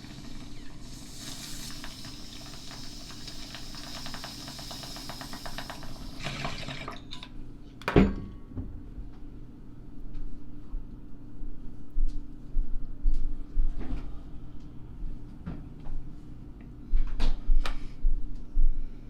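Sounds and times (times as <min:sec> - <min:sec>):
liquid pouring: 0:00.0 - 0:07.3.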